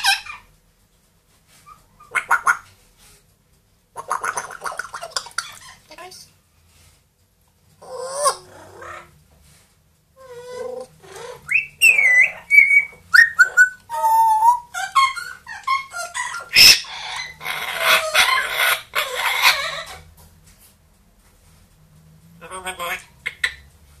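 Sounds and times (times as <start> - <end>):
parrot raspy calls: 0.0 - 0.5, 1.6 - 2.7, 3.9 - 5.9, 7.8 - 9.2, 10.2 - 20.1, 22.4 - 23.7
parrot whistling and chirping: 11.2 - 20.0.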